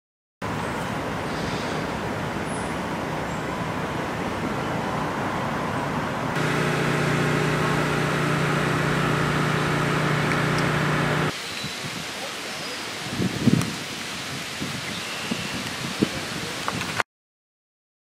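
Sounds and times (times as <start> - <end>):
low-pitched engine hum: 6.3 - 11.3.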